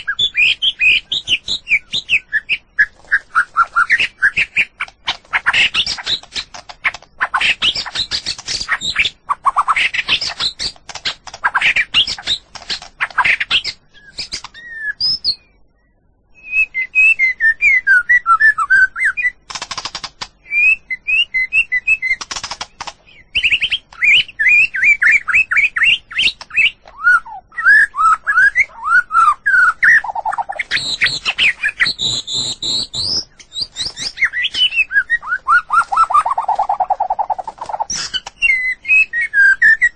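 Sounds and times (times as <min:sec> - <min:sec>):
bird singing whistled song: 0:00.0 - 0:19.5, 0:20.4 - 0:39.9.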